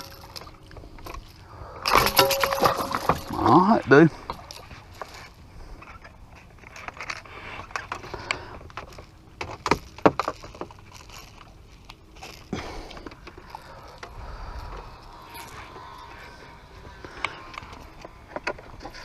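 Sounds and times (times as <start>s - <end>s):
metallic rattles and clicks: 0.0s - 6.0s.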